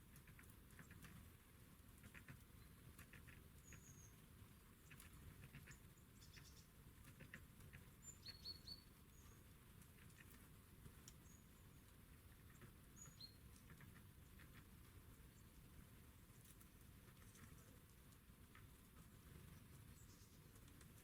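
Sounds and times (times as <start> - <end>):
soft clicks and ticks: 0.1 - 1.3, 9.7 - 15.0, 16.3 - 21.0
small songbirds chirping: 1.9 - 21.0.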